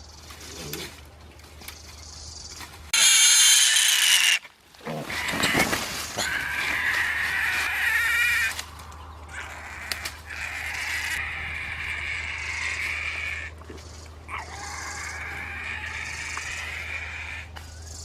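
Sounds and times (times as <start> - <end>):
pig squealing: 2.9 - 8.6, 9.3 - 13.6, 14.3 - 17.6.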